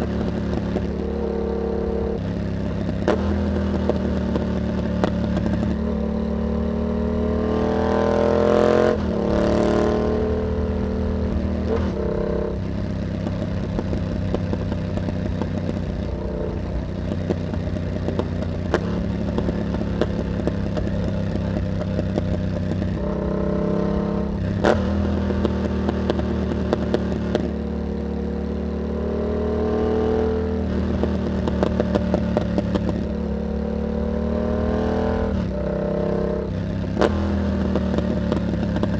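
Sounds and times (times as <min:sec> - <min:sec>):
motorcycle engine accelerating: 0:00.0 - 0:38.9
exhaust pops: 0:02.1 - 0:05.8, 0:11.3 - 0:23.2, 0:30.6 - 0:33.1, 0:36.7 - 0:38.9.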